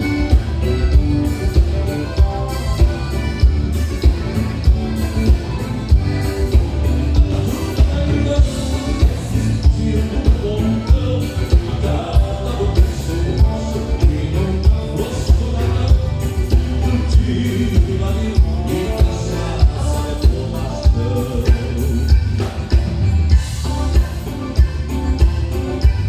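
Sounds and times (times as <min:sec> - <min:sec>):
bass drum beat: 0:00.0 - 0:26.0
live band playing dance music: 0:00.0 - 0:26.0
person singing: 0:06.4 - 0:25.9.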